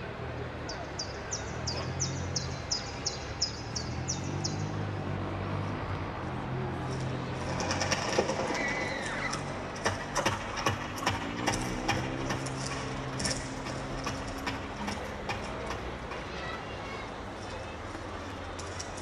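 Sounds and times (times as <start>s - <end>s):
clicks and knocks: 9.3s - 16.3s.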